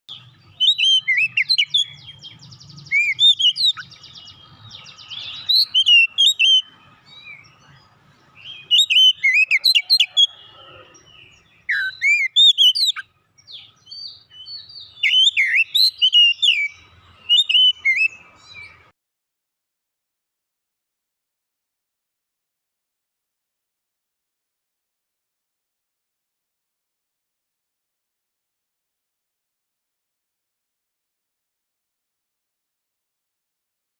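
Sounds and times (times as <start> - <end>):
bird singing whistled notes: 0.1 - 18.9.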